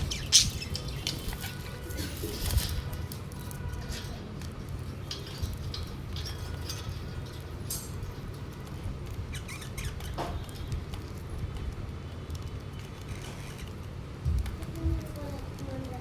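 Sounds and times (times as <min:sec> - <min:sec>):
budgerigars chirping: 0:00.0 - 0:02.5, 0:09.3 - 0:10.5.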